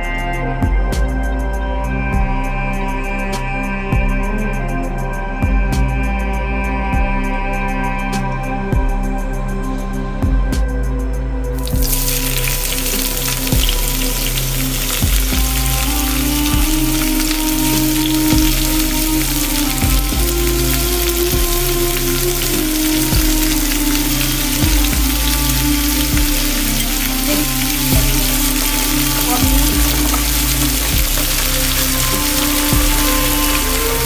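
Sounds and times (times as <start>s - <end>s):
background music with held notes: 0.0s - 34.0s
food sizzling in hot oil: 11.6s - 34.0s.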